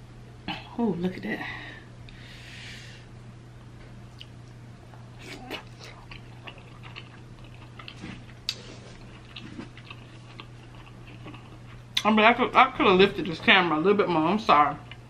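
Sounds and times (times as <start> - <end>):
wet chewing and lip smacking: 4.1 - 12.1.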